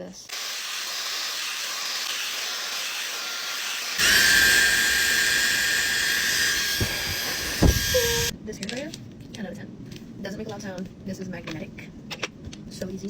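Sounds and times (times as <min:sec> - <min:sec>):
hair dryer air rushing: 0:04.0 - 0:08.3
high motor whine: 0:04.0 - 0:08.3.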